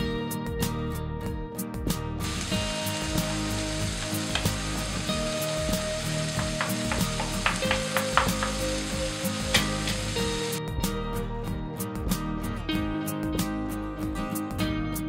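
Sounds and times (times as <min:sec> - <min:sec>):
tomato sizzling in a frying pan: 0:02.2 - 0:10.6
spatula scraping and tapping a pan: 0:04.0 - 0:10.0.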